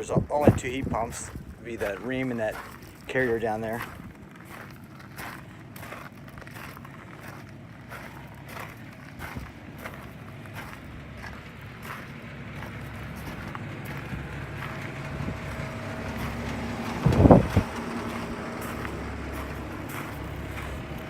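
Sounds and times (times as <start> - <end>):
wind rumble on microphone: 0.0 - 4.6, 9.1 - 21.0
air conditioner units humming: 0.0 - 21.0.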